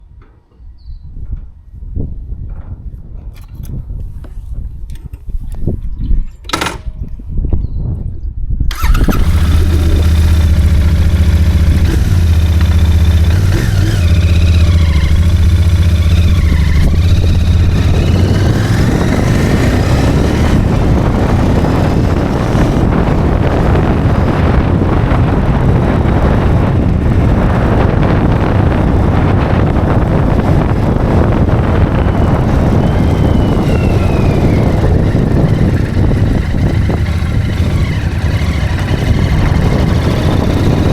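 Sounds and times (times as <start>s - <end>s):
motorcycle engine idling: 8.7s - 24.1s, 28.5s - 40.9s.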